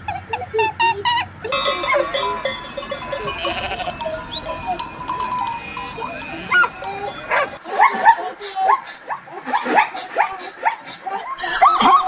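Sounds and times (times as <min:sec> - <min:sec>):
bells ringing: 0:01.5 - 0:07.6
flock of sheep bleating: 0:01.5 - 0:07.6.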